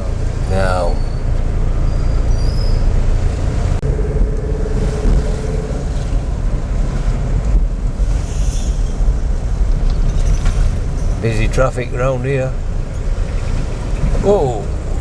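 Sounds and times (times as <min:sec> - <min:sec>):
car road noise: 0:00.0 - 0:15.0
wind buffeting microphone: 0:02.8 - 0:11.5, 0:12.5 - 0:15.0.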